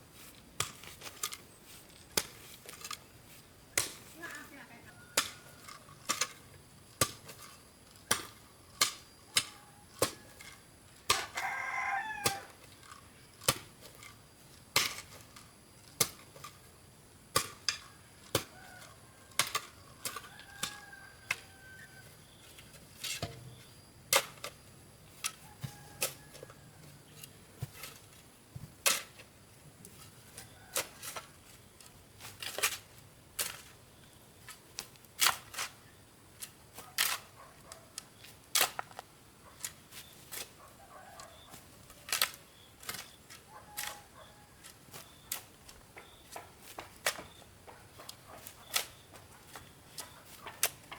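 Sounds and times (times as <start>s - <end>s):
rooster crowing: 11.2s - 12.6s, 20.2s - 22.2s, 25.4s - 26.9s, 40.8s - 41.5s, 43.5s - 44.7s.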